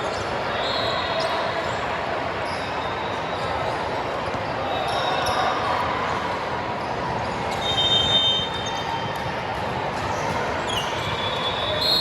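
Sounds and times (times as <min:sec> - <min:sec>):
indoor gym noise: 0:00.0 - 0:12.0.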